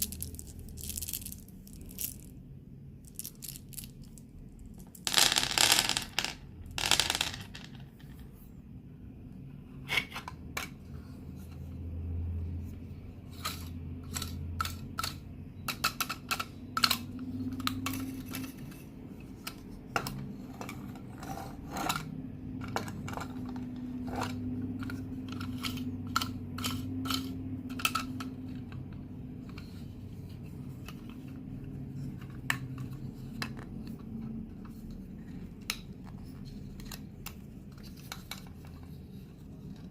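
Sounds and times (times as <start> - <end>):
candy wrapper crinkling: 0.0 - 2.3, 3.1 - 5.1.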